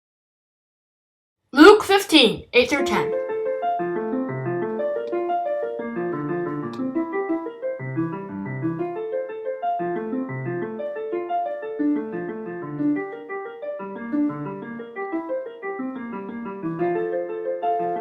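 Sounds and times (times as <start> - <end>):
solo piano music: 3.1 - 18.0.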